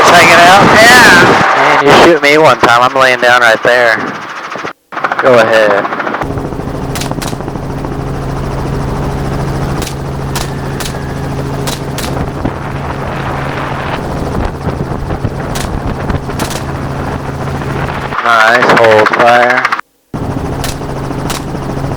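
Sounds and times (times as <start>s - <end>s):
helicopter engine and rotor: 0.0s - 21.9s
rifle shots: 6.9s - 7.6s, 9.8s - 13.5s, 15.4s - 17.2s, 20.6s - 21.6s.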